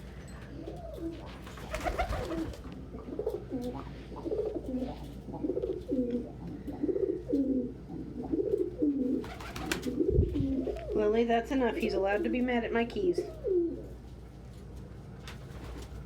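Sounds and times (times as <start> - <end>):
pigeons cooing: 0.0 - 11.2, 13.0 - 14.2.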